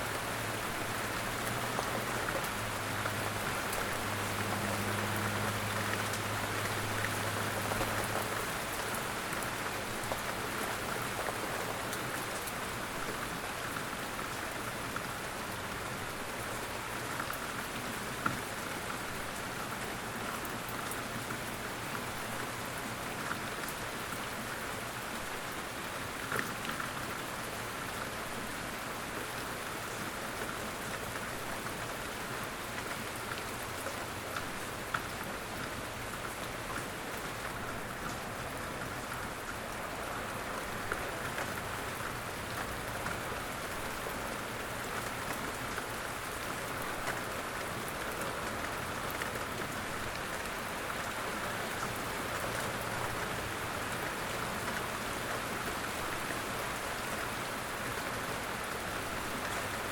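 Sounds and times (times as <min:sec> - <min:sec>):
light rain falling: 0:00.0 - 0:59.9.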